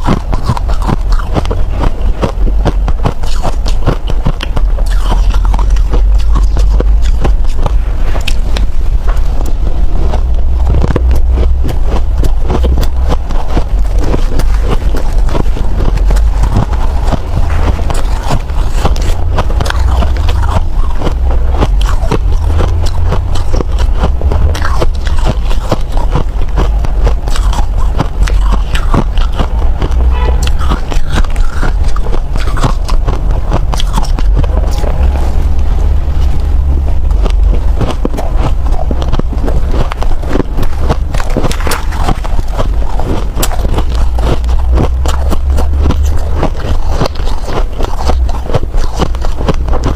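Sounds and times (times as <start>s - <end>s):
chewing frozen snow ice: 0.0s - 49.9s
low rumble: 0.0s - 49.9s.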